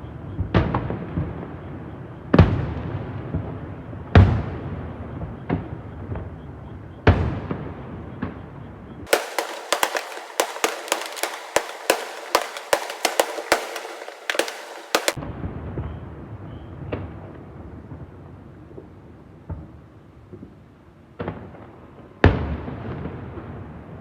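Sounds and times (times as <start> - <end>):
fireworks bangs: 9.1 - 15.2.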